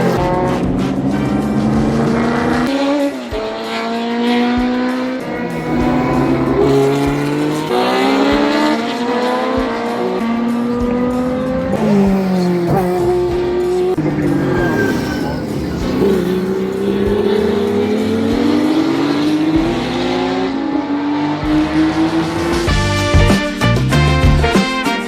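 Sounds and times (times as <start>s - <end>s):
racing car engines accelerating: 0.0s - 23.1s.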